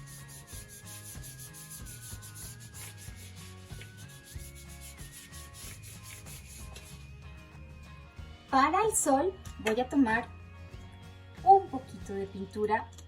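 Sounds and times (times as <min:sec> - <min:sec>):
paintbrush scrubbing on board: 0:00.0 - 0:07.1
soft background music: 0:00.0 - 0:13.0.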